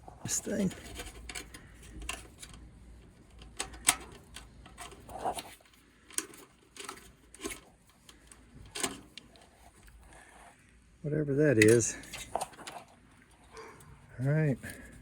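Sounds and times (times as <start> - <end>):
metal parts knocking and clicking: 0.3 - 9.4.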